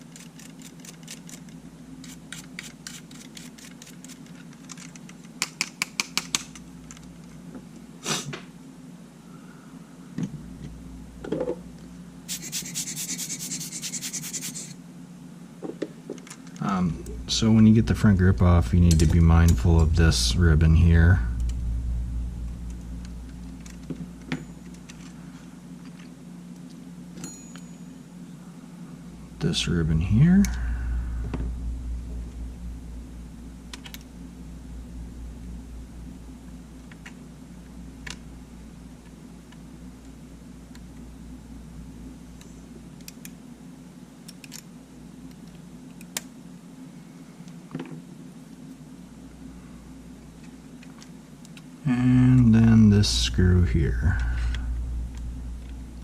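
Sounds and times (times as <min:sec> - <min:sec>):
steady low hum: 0:00.0 - 0:56.0
clicks and taps of tools: 0:04.6 - 0:07.0.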